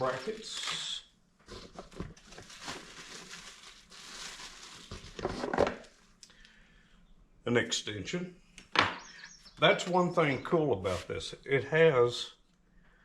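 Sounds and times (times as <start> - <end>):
packaging crinkling and rustling: 0.0 - 6.0.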